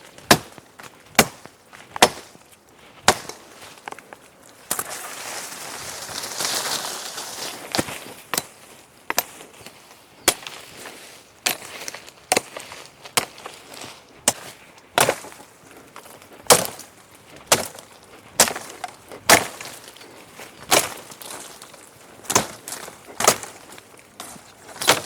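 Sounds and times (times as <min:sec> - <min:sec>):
wood being chopped: 0:00.2 - 0:02.4, 0:03.0 - 0:04.0, 0:07.7 - 0:09.4, 0:10.2 - 0:10.6, 0:11.4 - 0:13.6, 0:14.2 - 0:25.0.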